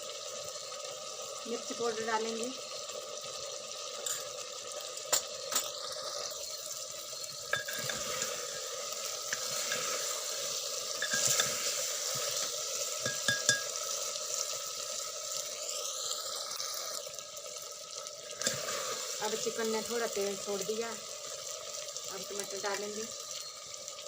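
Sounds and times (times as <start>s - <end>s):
chicken sizzling in oil: 0.0s - 24.0s
spoon clicking against pan: 11.0s - 11.5s, 13.0s - 13.7s.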